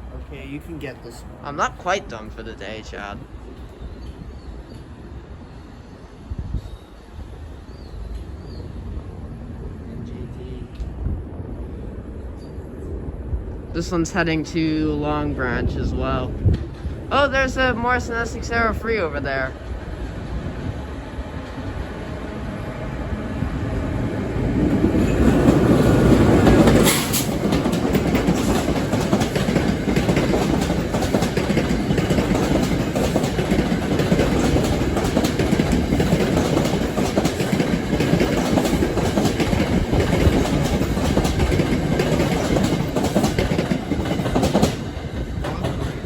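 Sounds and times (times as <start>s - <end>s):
train rumbling past: 0.0s - 46.0s
wheels clacking over rail joints: 24.5s - 46.0s.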